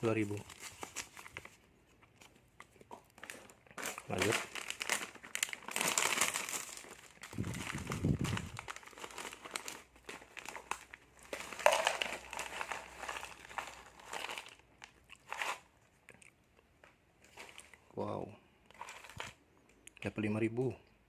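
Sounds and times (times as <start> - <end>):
plastic packets crinkling: 0.0 - 1.6, 3.0 - 15.7, 18.7 - 19.4.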